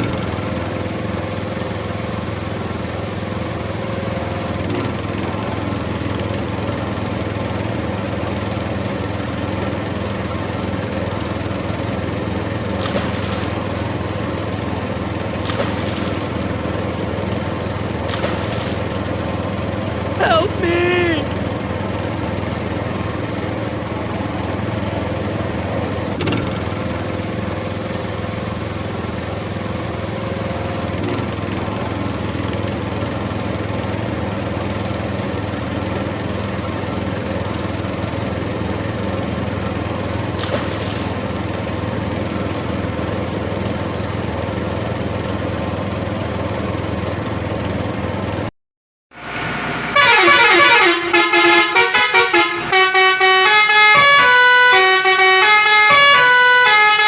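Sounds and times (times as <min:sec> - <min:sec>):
electronic toy horn: 0:50.0 - 0:57.0.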